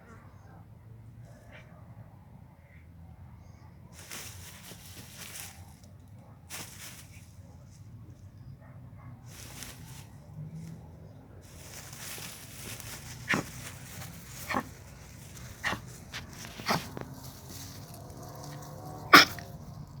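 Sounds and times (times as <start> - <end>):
dog barking sharply: 13.3 - 13.6, 14.4 - 14.7, 15.6 - 15.9, 16.6 - 16.9, 19.1 - 19.5.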